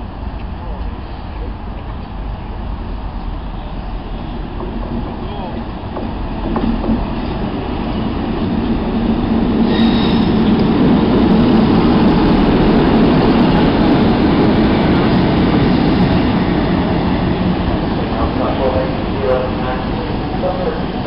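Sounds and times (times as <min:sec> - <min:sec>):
train passing at speed: 0:00.0 - 0:21.0
brief high squeal: 0:09.7 - 0:10.3.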